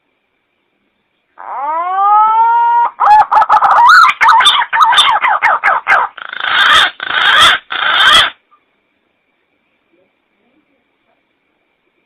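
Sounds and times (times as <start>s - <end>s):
harsh noisy bird calls: 1.4s - 8.6s.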